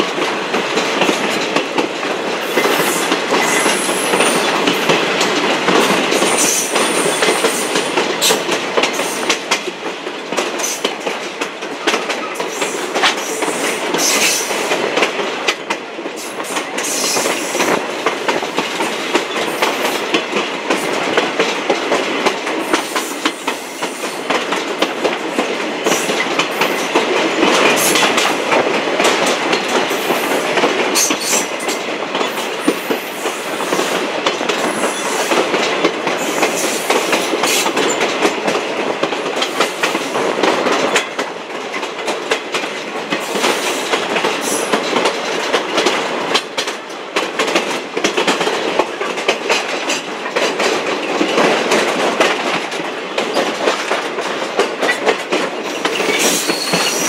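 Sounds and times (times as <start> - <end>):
train rumbling: 0.0 - 57.0
train wheels clicking over rail joints: 0.0 - 57.0.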